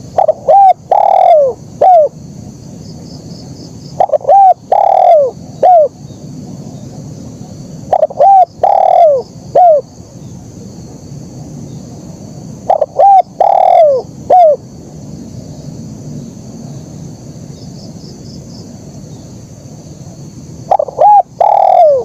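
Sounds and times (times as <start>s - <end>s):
dove cooing: 0.0s - 2.2s, 4.0s - 6.0s, 7.4s - 9.9s, 12.7s - 14.6s, 20.7s - 22.0s
steady high hiss: 0.0s - 22.0s.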